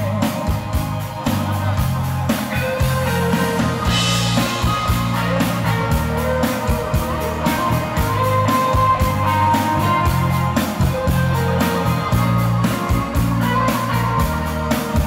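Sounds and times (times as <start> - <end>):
live band playing: 0.0 - 15.0
cymbal crash: 3.4 - 5.8.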